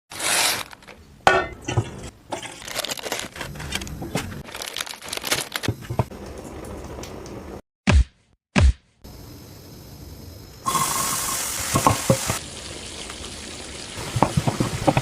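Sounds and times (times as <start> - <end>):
food crinkling and clicking: 2.3 - 7.4.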